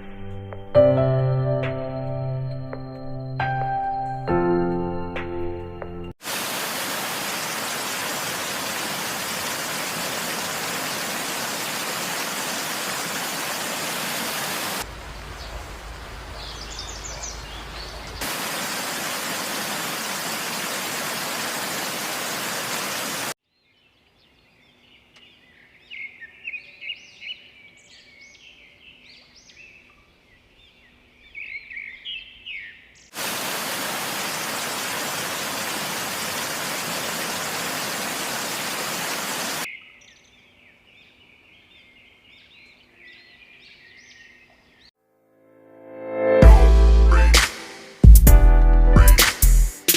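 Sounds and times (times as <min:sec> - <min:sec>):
small birds chirping: 0:07.2 - 0:44.9.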